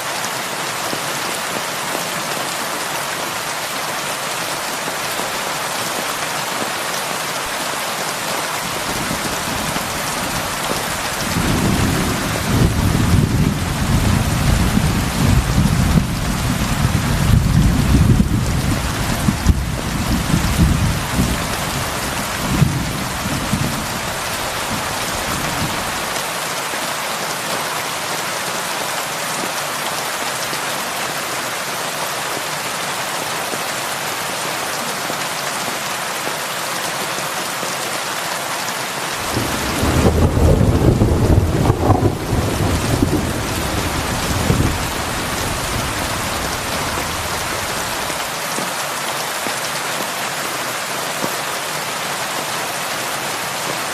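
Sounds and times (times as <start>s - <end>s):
heavy rain pouring: 0.0s - 53.9s
thunder rumbling: 8.7s - 26.0s, 39.2s - 48.2s.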